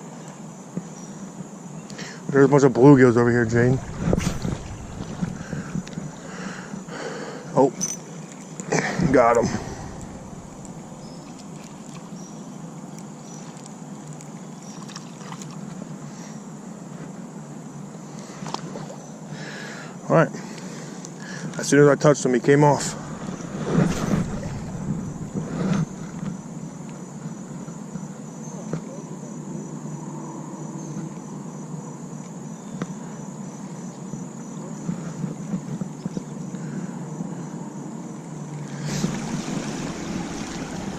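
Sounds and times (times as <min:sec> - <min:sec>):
insects trilling: 0:00.4 - 0:14.9, 0:22.5 - 0:40.9
low outdoor rush: 0:02.8 - 0:07.0, 0:08.8 - 0:12.2, 0:22.4 - 0:27.1, 0:38.7 - 0:40.9
creek water flowing: 0:03.1 - 0:06.9, 0:08.8 - 0:12.2, 0:22.6 - 0:26.9, 0:38.7 - 0:40.9.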